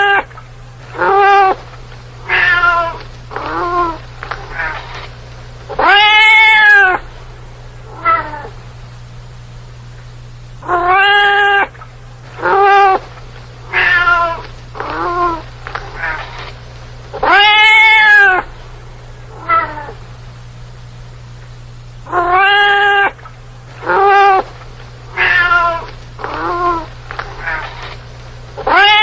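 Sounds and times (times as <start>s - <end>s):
cat meowing: 0.0s - 0.3s, 1.0s - 1.6s, 2.3s - 4.9s, 5.7s - 7.0s, 7.9s - 8.5s, 10.6s - 11.8s, 12.4s - 13.0s, 13.7s - 16.3s, 17.2s - 18.5s, 19.3s - 20.0s, 22.1s - 23.2s, 23.8s - 24.5s, 25.1s - 27.9s, 28.6s - 29.0s.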